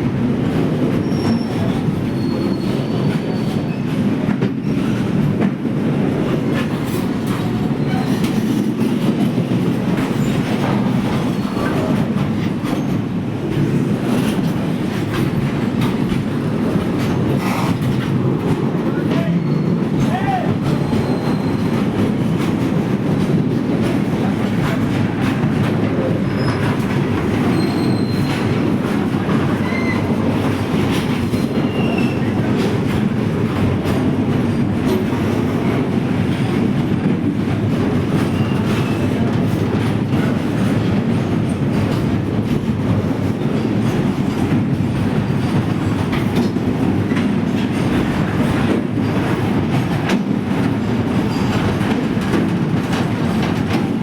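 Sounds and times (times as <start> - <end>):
train rumbling on track: 0.0 - 54.0
faint high wheel squeals: 1.0 - 3.8, 20.8 - 21.7, 27.4 - 28.5, 29.6 - 30.1.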